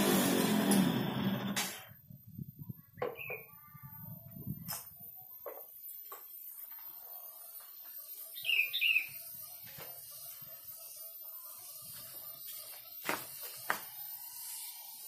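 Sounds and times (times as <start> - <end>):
small bird chirping: 8.3 - 9.6.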